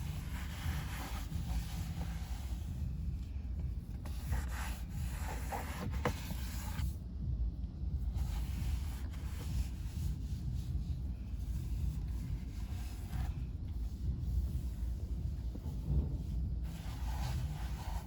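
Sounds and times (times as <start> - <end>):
rubbing and scraping: 0.0 - 3.2, 4.0 - 7.0, 8.1 - 18.0
wind buffeting microphone: 9.8 - 18.0.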